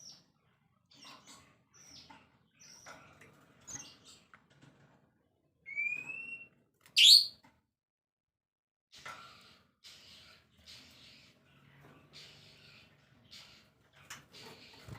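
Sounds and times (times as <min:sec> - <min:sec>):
songbird chirps: 0:05.7 - 0:07.4.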